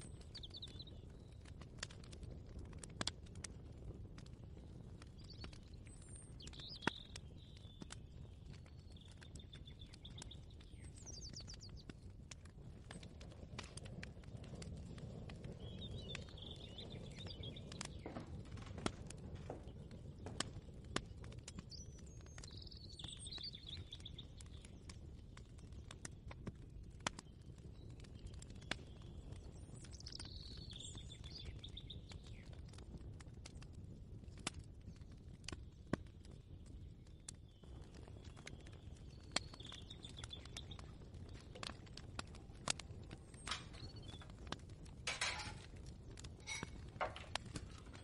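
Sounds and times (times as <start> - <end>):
bird chirping: 15.6 - 18.5, 21.6 - 24.8, 43.2 - 44.4.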